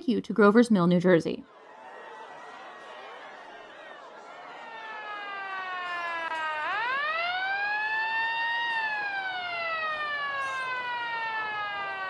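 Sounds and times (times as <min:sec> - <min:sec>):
wailing siren: 0:01.4 - 0:12.0.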